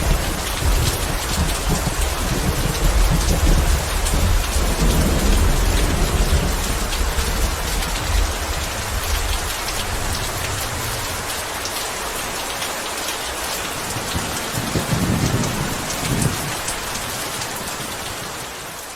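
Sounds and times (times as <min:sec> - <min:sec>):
thunder rumbling: 0:00.0 - 0:11.6, 0:13.7 - 0:18.5
heavy rain: 0:00.0 - 0:18.9.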